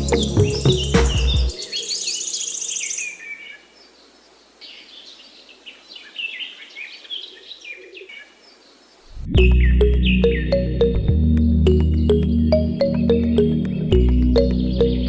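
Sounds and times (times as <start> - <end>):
music: 0.0 - 1.7, 9.3 - 15.0
small birds chirping: 0.0 - 10.8, 11.7 - 15.0.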